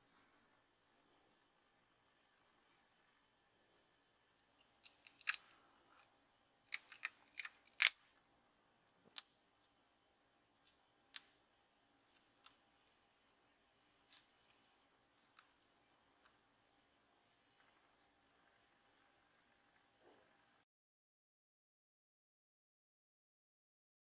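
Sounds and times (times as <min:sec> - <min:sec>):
hand tools clicking and snipping: 0:04.8 - 0:05.4, 0:06.7 - 0:08.0.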